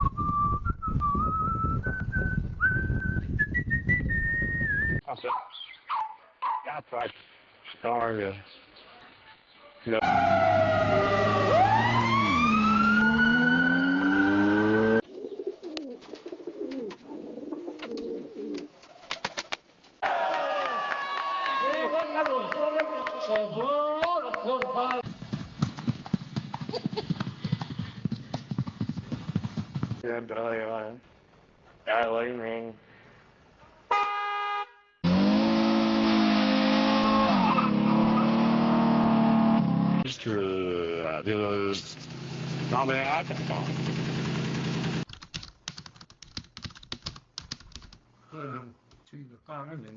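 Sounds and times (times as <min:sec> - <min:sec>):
engine hum: 0:10.0 - 0:15.0, 0:35.0 - 0:40.0, 0:41.8 - 0:45.0
siren gliding: 0:10.0 - 0:15.0
pigeons cooing: 0:15.0 - 0:18.8
horn-like tone: 0:33.9 - 0:35.1.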